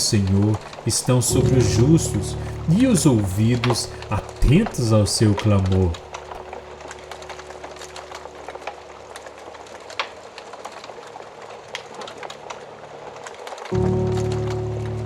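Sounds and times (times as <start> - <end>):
wood fire crackling: 0.0 - 15.0
faint low steady tone: 1.3 - 5.1.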